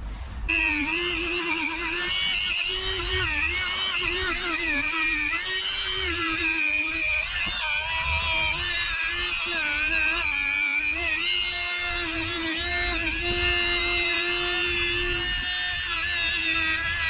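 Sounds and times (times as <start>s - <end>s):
power tool motor whine: 0.5s - 17.0s.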